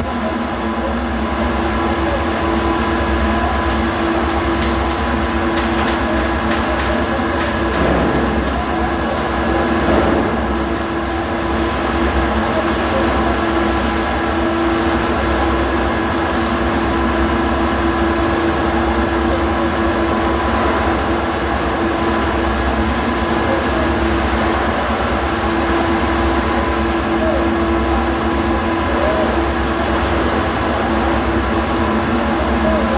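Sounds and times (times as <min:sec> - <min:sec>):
constant hum: 0:01.0 - 0:16.0.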